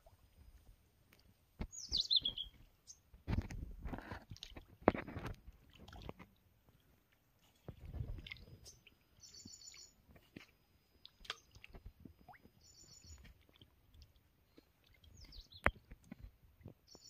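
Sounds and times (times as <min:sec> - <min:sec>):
high rapidly pulsed bird call: 0:01.7 - 0:02.6
faint bird chirps: 0:01.7 - 0:03.0, 0:08.6 - 0:10.0, 0:12.6 - 0:13.5, 0:14.4 - 0:17.0.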